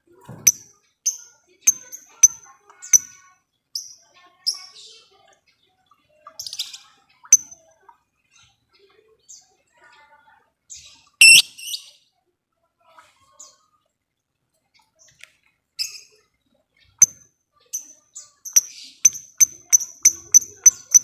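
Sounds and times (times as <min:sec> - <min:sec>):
bird screech: 0:11.2 - 0:11.4
lovebirds chirping: 0:11.2 - 0:11.5, 0:17.8 - 0:21.0.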